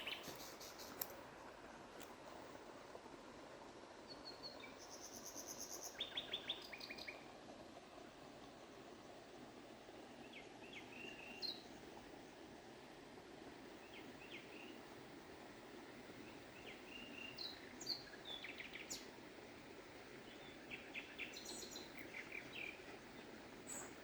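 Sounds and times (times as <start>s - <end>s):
small birds chirping: 0.0s - 1.1s, 16.6s - 19.1s, 20.2s - 24.0s.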